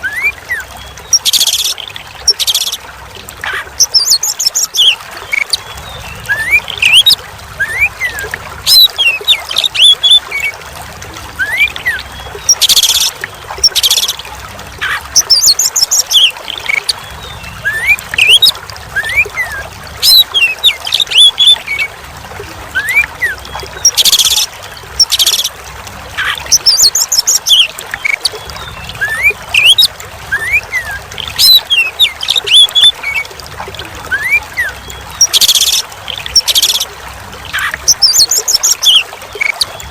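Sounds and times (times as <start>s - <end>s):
water trickling: 0.0s - 39.9s
bird singing whistles and chirps: 28.5s - 33.0s.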